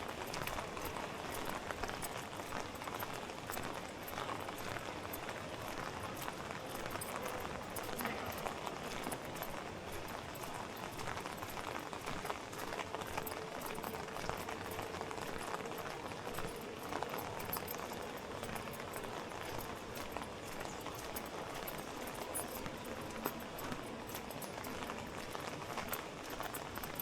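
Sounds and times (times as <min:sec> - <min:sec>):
rain on street: 0:07.8 - 0:19.5.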